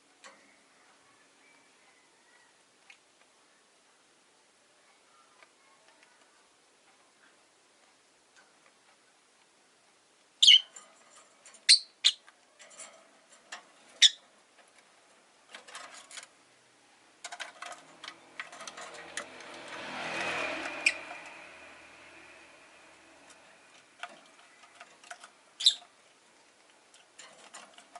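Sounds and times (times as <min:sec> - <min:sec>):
lovebirds chirping: 0:10.4 - 0:10.8, 0:11.6 - 0:12.3, 0:13.9 - 0:14.2, 0:20.8 - 0:21.1, 0:25.6 - 0:25.9.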